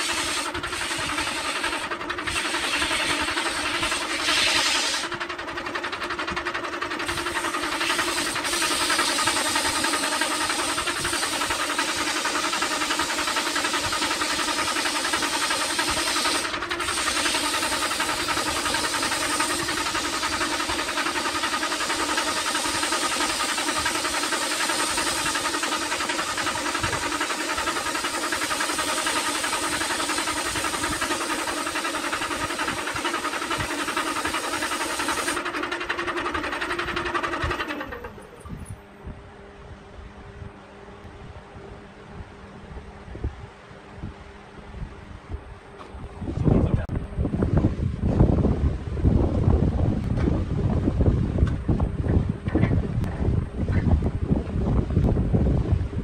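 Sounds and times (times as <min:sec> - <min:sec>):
sandpaper hissing on spinning wood: 0:00.0 - 0:38.2
lathe motor humming: 0:00.0 - 0:42.1.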